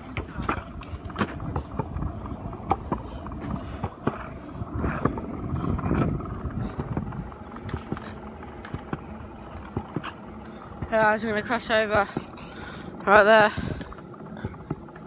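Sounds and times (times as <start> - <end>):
footsteps of people walking: 0.0 - 11.0
low steady rumble: 0.0 - 15.0.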